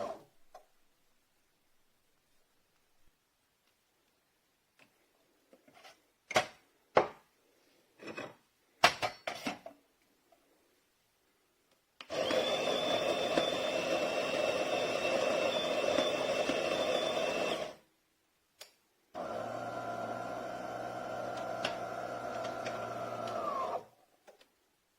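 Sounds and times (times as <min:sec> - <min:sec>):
coffee grinder whining: 0:12.1 - 0:17.8, 0:19.2 - 0:23.9.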